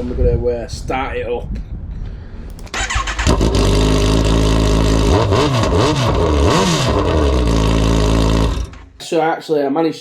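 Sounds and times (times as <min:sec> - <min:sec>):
motorcycle starter turning over: 0:02.7 - 0:08.9
motorcycle engine idling and revving: 0:02.8 - 0:08.9.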